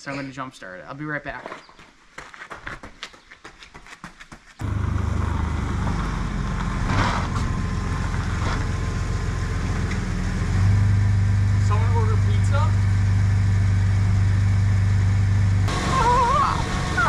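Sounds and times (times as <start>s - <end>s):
truck engine running: 4.6s - 17.0s.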